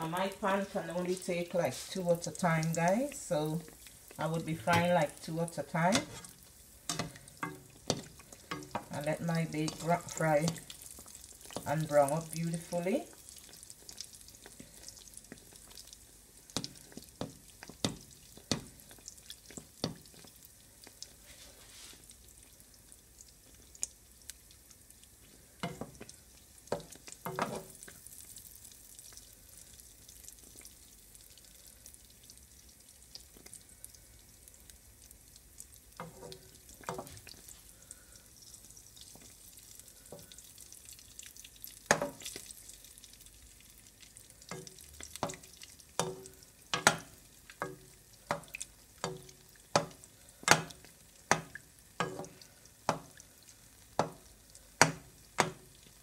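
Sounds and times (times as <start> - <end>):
dough sizzling in oil: 0.0 - 56.0
spatula tapping and scraping pan: 4.5 - 11.9, 16.6 - 20.3, 25.6 - 26.1, 26.7 - 27.8, 36.0 - 37.4, 41.8 - 42.5, 44.5 - 53.2, 53.9 - 55.8.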